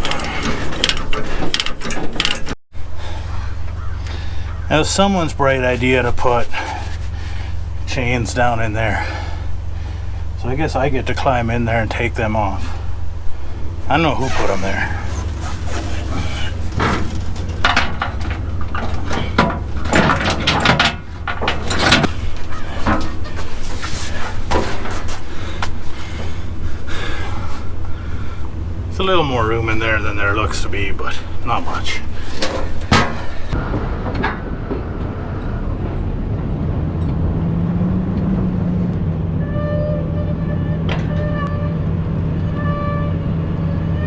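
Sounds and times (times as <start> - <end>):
steady low hum: 0.0 - 34.0
diesel engine rumbling: 0.0 - 44.0
steady drone: 2.8 - 39.4
chains clanking and rattling: 4.9 - 33.6.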